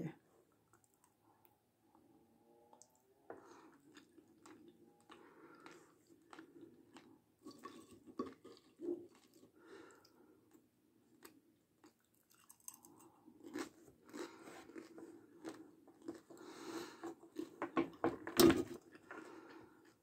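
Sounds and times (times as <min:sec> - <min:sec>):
chewing crispy potato straws: 0:03.5 - 0:17.6.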